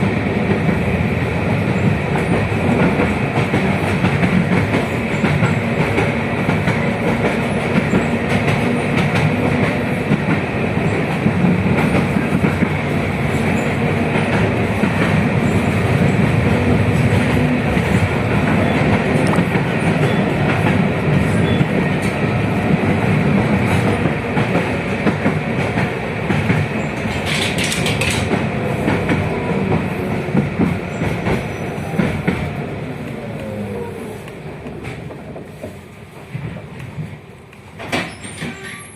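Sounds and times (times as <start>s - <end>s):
falling whine of slowing tram: 0.0s - 38.9s
tram wheels rumbling on rails: 0.0s - 38.9s
clattering over rail joints: 25.2s - 29.2s.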